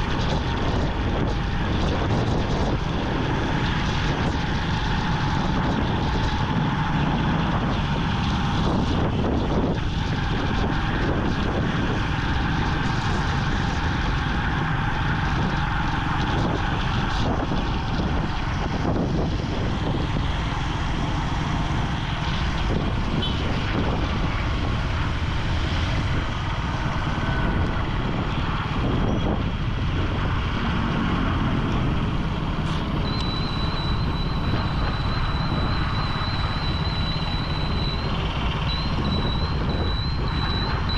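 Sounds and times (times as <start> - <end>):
motorcycle engine running: 0.0 - 40.9
wind and road noise: 0.0 - 40.9
thin high tone: 33.0 - 40.9.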